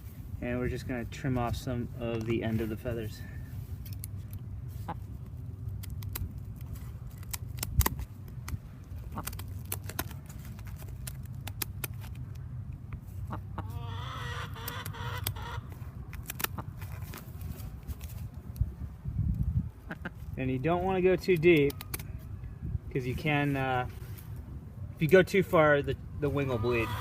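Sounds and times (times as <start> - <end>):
scissors snipping feathers: 5.2 - 12.3, 16.1 - 16.7, 21.2 - 22.1
hen clucking: 13.2 - 15.8, 26.3 - 27.0.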